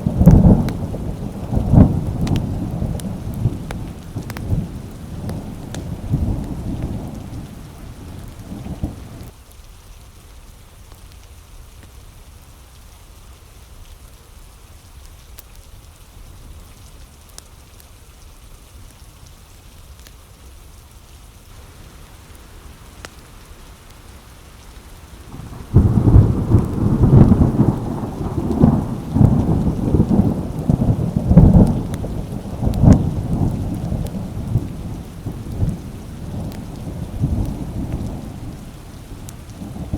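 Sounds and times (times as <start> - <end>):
rolling thunder: 0.0 - 9.3, 21.6 - 39.9
steady rain: 0.0 - 39.9.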